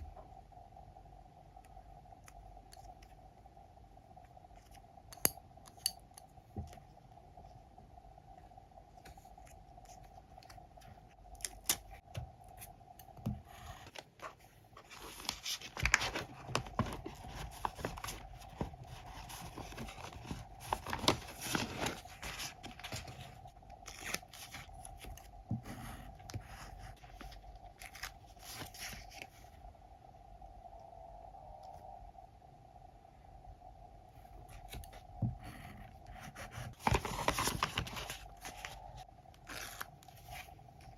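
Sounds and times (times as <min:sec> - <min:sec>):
faint steady hum: 0:00.0 - 0:40.9
paper rustling and tearing: 0:14.8 - 0:25.0, 0:36.4 - 0:40.5.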